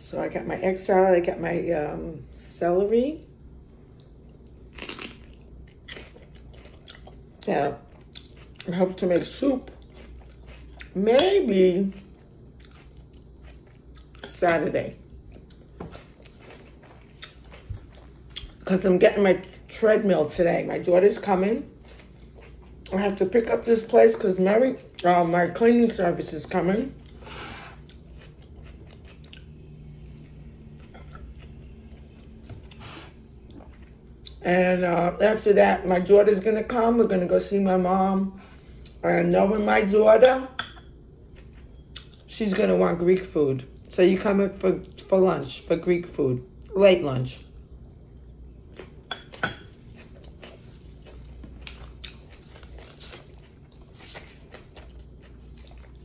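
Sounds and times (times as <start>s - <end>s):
low room hum: 0.0s - 56.0s
quiet eating noises: 3.2s - 35.5s, 36.3s - 56.0s
eating crunches and clicks: 9.6s - 11.0s.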